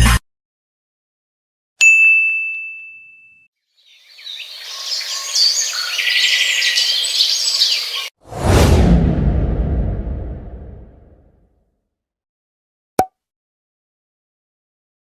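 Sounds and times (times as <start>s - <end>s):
small bell ding: 1.8s - 3.5s
birds chirping and trilling: 3.7s - 8.2s.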